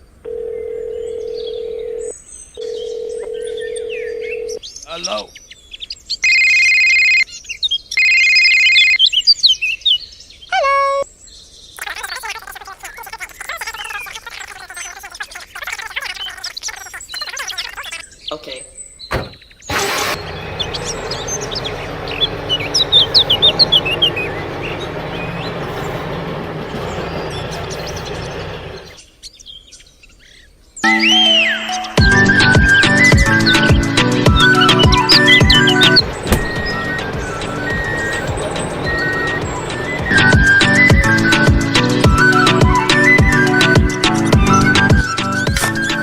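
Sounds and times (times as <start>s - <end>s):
birds chirping: 0.0s - 46.0s
long electronic beeps: 6.2s - 7.2s.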